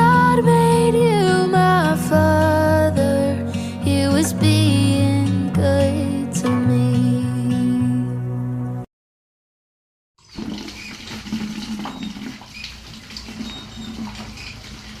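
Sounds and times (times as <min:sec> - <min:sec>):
music track: 0:00.0 - 0:08.9.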